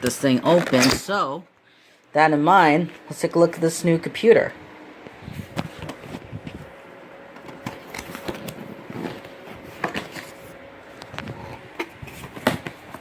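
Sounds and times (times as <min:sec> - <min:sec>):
cardboard box rustling and scraping: 0:07.6 - 0:10.6.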